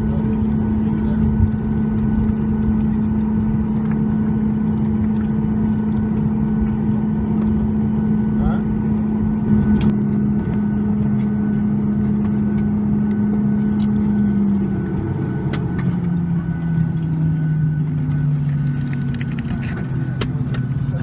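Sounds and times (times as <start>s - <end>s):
airplane cabin hum: 0.0s - 21.0s.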